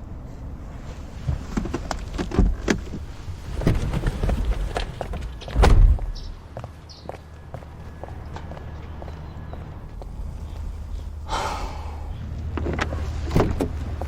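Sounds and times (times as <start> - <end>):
steady low rumble: 7.3 - 14.0.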